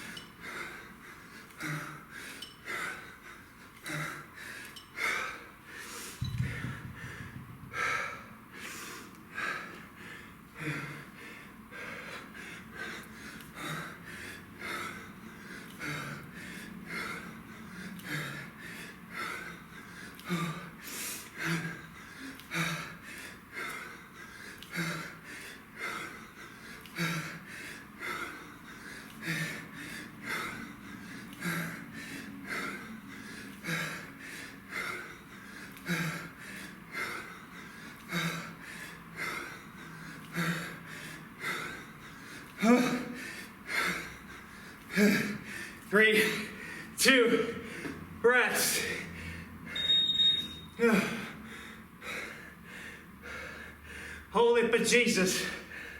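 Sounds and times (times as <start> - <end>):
man breathing hard: 0.0 - 49.9, 50.8 - 54.4, 55.2 - 55.9.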